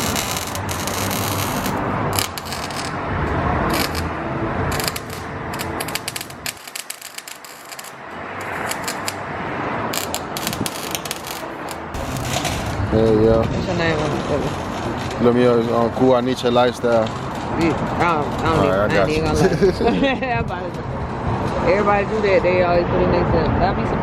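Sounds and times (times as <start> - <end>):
metal hand tools clicking and rattling: 4.7 - 9.2.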